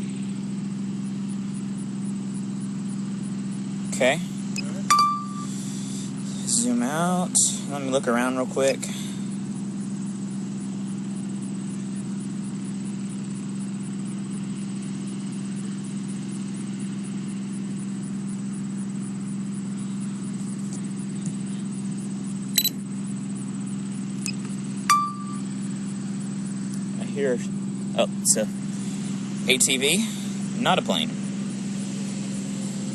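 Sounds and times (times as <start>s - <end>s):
vehicle engine idling hum: 0.0s - 32.9s
brief beep: 4.6s - 5.5s, 24.3s - 25.5s
short clicks: 22.6s - 22.8s.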